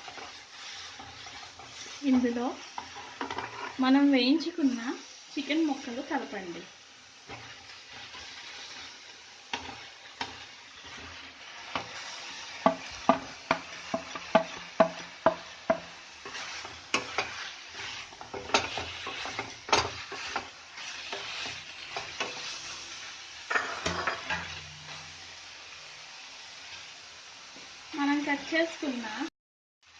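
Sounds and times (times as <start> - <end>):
spoon scraping a pan: 0.0 - 4.0, 7.2 - 25.1
food sizzling in a pan: 0.0 - 29.9.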